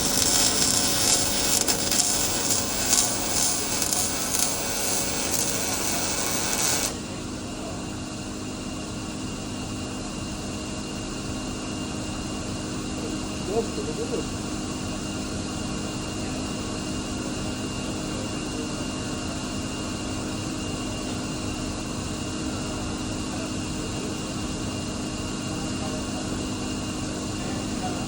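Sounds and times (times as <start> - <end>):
welding arc crackling: 0.0 - 7.0
steady background hum: 0.0 - 16.2.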